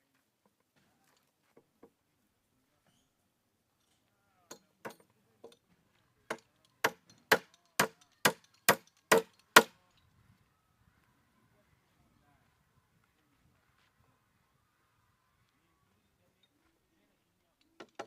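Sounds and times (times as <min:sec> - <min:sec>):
tool striking wood: 0:06.3 - 0:09.7, 0:17.8 - 0:18.0.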